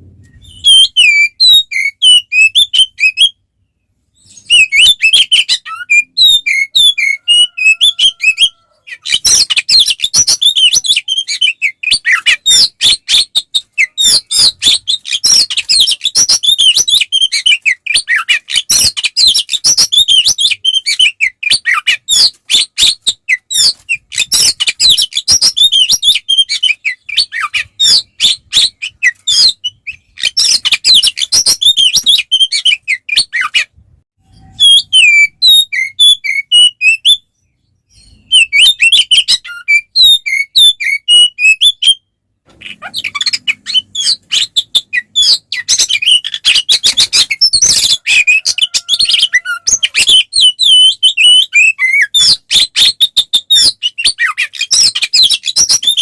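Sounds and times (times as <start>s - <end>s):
songbird singing fast whistles: 0.0s - 3.4s, 4.2s - 42.0s.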